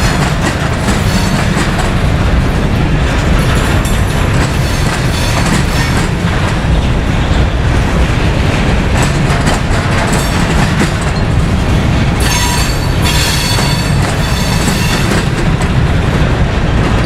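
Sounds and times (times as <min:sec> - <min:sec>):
train wheels clattering over rails: 0:00.0 - 0:17.0
high wheel squeal: 0:12.2 - 0:15.1.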